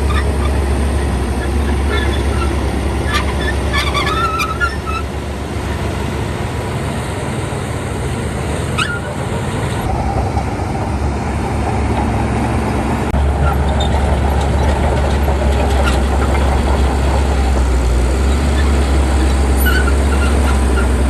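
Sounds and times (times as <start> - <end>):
heavy diesel engine rumbling: 0.0 - 21.0
short rising squeak: 1.6 - 5.1, 8.8 - 9.2, 19.6 - 21.0.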